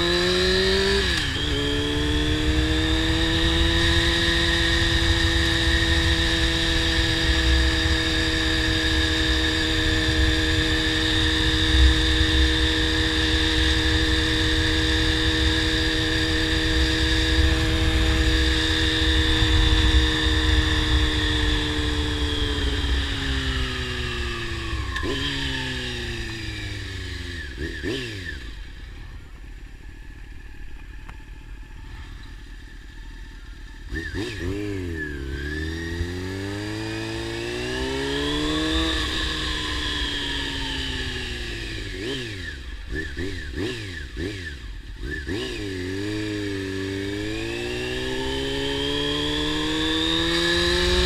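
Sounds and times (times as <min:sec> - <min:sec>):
motorcycle engine cruising: 0:00.0 - 0:51.0
wind rumble: 0:02.0 - 0:27.2.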